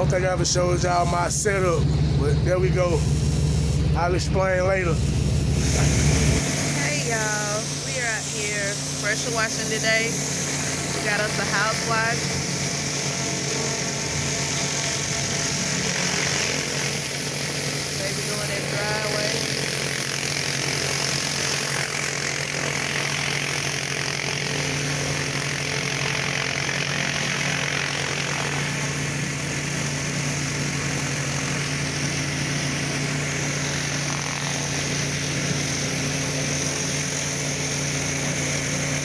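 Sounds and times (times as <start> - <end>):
pressure washer engine running: 0.0 - 39.0
high-pressure water spray hissing: 2.9 - 3.8, 4.8 - 39.0.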